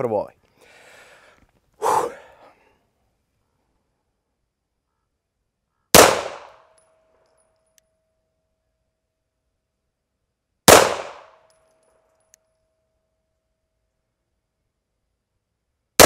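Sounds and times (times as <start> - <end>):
pistol shots: 5.9 - 6.7, 10.7 - 11.4.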